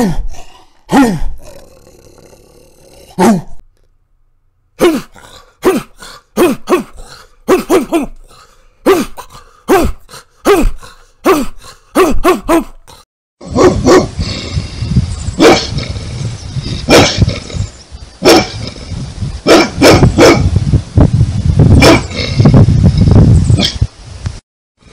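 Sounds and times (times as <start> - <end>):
big dog barking deeply: 3.1 - 3.6, 4.8 - 8.2, 8.9 - 12.8, 13.4 - 14.6, 15.4 - 17.6, 18.2 - 18.8, 19.4 - 20.6, 21.8 - 22.4
second big dog barking: 13.6 - 14.1, 15.4 - 15.7, 16.9 - 17.2, 19.5 - 20.5, 21.8 - 22.1.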